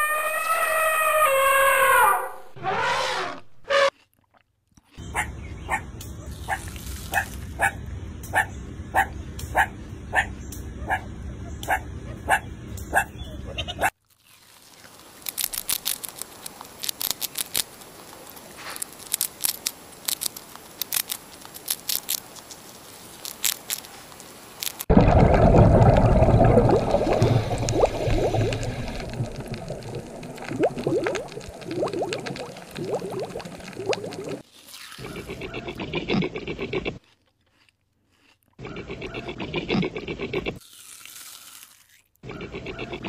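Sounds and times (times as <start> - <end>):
underwater bubbling and gurgling: 24.9 - 34.4.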